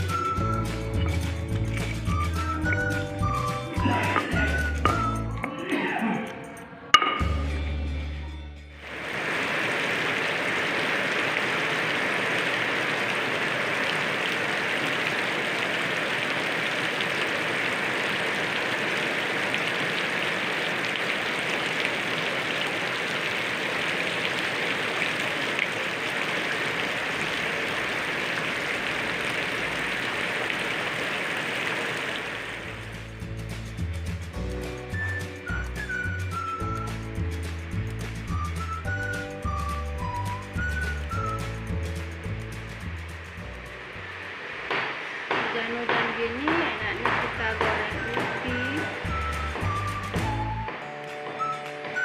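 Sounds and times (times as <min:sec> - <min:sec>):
oil sizzling with frying food: 0:34.9 - 0:50.7.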